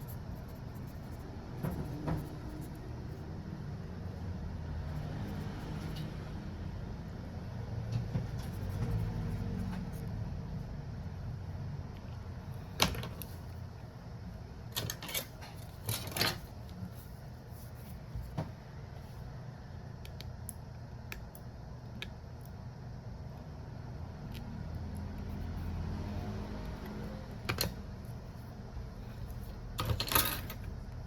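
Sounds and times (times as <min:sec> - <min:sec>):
tools and phone parts clicking: 0:29.8 - 0:30.8.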